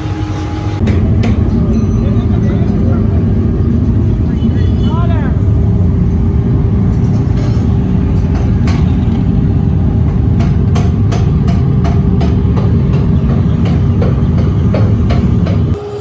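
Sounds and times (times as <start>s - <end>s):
heavy machinery rumbling: 0.0s - 4.5s.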